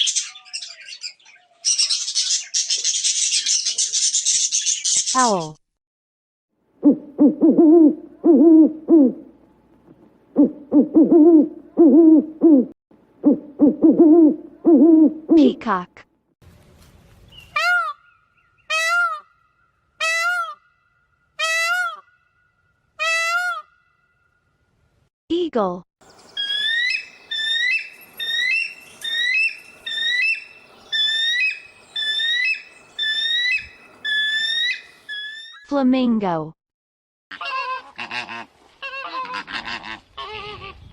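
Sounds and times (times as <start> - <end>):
owl hooting: 6.8 - 9.3, 10.4 - 15.6, 26.3 - 35.6
eagle whistled calls: 26.2 - 35.7.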